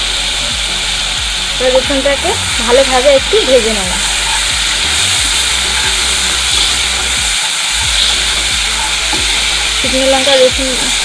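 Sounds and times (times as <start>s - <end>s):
food sizzling in hot oil: 0.0s - 11.0s
spatula stirring: 2.6s - 11.0s.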